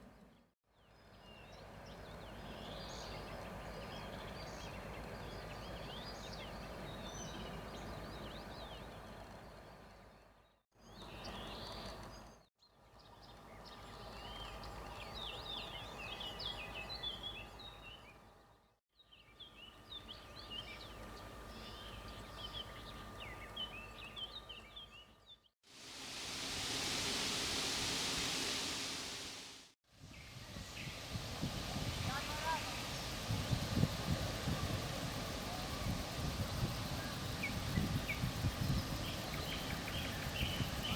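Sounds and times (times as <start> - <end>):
even hiss: 25.7 - 40.9
small birds chirping: 35.6 - 40.9.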